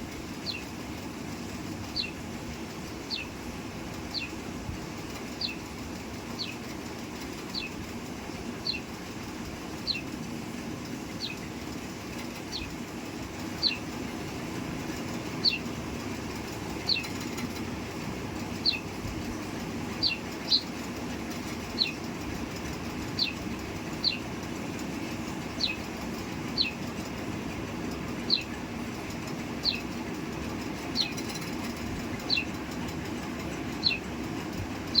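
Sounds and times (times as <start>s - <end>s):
low background rumble: 0.0s - 35.0s
sparrow chirping: 0.4s - 0.7s, 1.9s - 2.2s, 2.8s - 3.4s, 4.1s - 4.4s, 5.1s - 7.8s, 8.5s - 9.0s, 9.7s - 10.2s, 11.0s - 11.6s, 12.2s - 12.8s, 13.5s - 13.9s, 15.0s - 17.6s, 18.5s - 27.1s, 28.1s - 30.1s, 30.8s - 32.7s, 33.8s - 34.1s.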